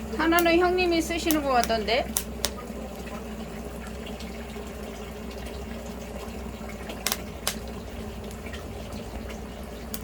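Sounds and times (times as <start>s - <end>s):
fire crackling pops: 0.3s - 2.6s, 7.0s - 8.4s.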